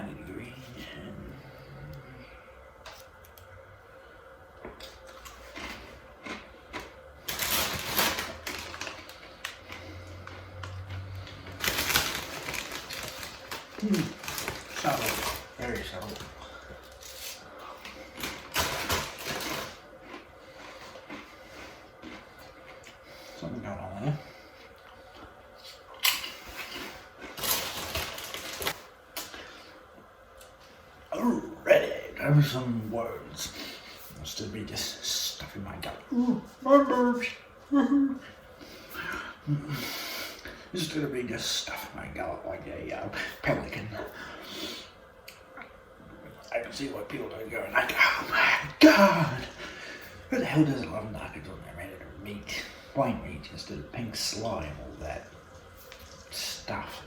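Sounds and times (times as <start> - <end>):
potato chips crunching: 4.8 - 21.3.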